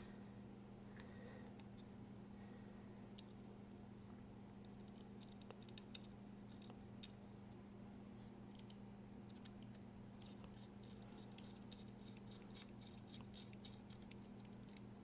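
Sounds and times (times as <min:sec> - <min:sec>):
steady low hum: 0:00.0 - 0:15.0
small metal parts clicking: 0:04.8 - 0:07.2, 0:10.2 - 0:14.8.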